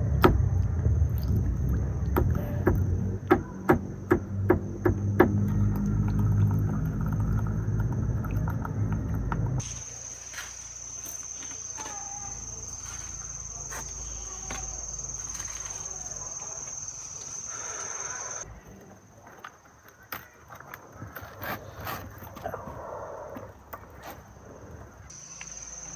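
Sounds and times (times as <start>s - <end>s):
loud low hum: 0.0s - 9.9s
crickets trilling: 0.0s - 18.5s, 19.5s - 25.9s.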